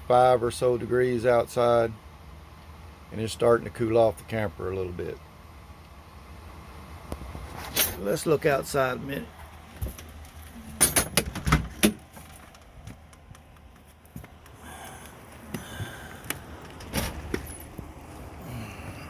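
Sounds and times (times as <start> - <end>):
handling clicks and knocks: 9.5 - 14.6.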